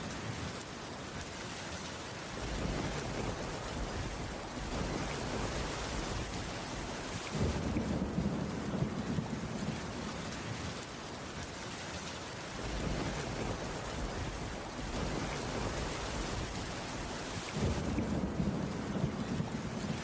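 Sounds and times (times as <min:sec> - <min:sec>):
steady rain falling: 0:00.0 - 0:20.0
low rolling thunder: 0:02.4 - 0:10.7, 0:12.6 - 0:20.0.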